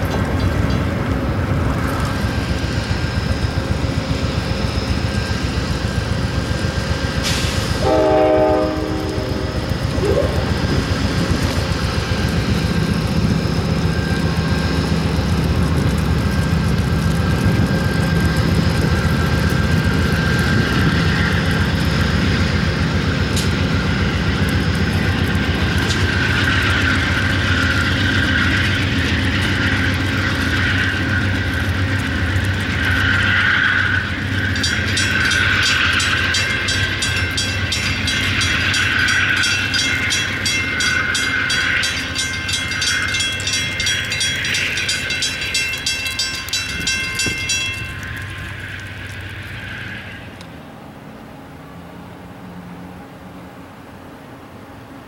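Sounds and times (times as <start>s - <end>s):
diesel engine and wheels running: 0.0s - 55.0s
train horn blast: 7.8s - 10.4s.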